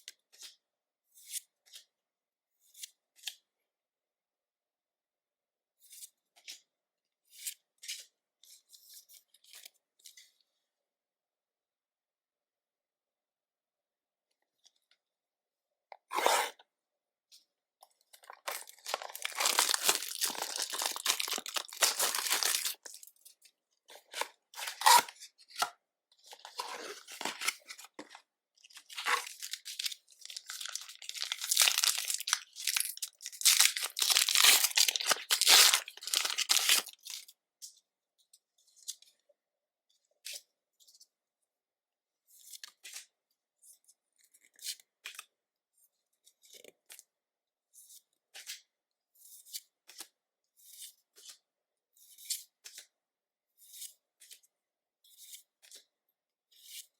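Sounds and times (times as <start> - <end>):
foil wrappers tearing and crinkling: 18.4 - 23.1, 28.9 - 37.2
cards being handled: 18.5 - 23.0, 28.9 - 37.2.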